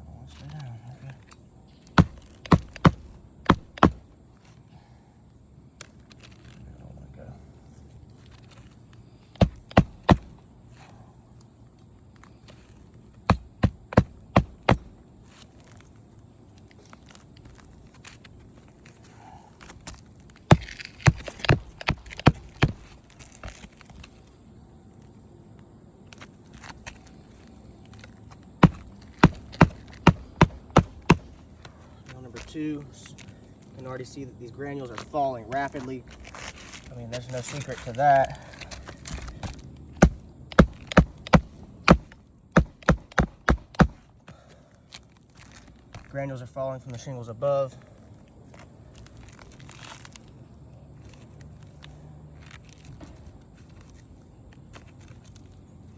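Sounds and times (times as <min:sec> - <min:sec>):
hammer blows on roof shingle: 0:02.0 - 0:04.0, 0:09.3 - 0:10.4, 0:13.2 - 0:15.0, 0:20.5 - 0:23.6, 0:28.6 - 0:31.4, 0:39.1 - 0:44.4.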